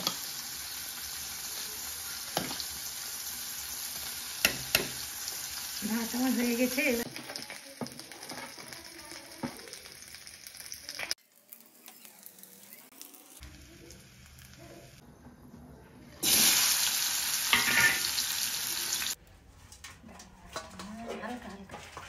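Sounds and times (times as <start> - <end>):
food sizzling in a pan: 0.0 - 15.0, 16.1 - 19.2
stirring in a pan: 19.4 - 22.0.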